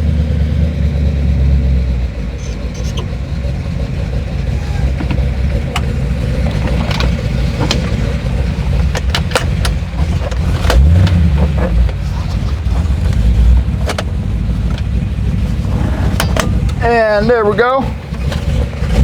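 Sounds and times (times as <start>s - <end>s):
engine idling with low rumble: 0.0s - 19.0s
sharp clicks and knocks: 4.4s - 17.0s, 18.0s - 19.0s.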